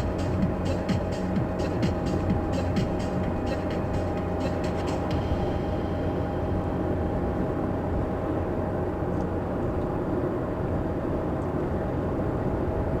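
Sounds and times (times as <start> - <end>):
steady higher tones: 0.0 - 7.7.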